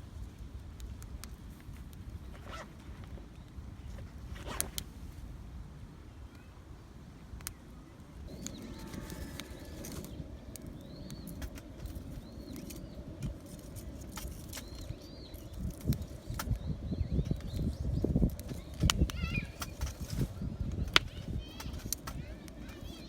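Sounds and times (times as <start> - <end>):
small bird chirping: 8.3 - 23.0.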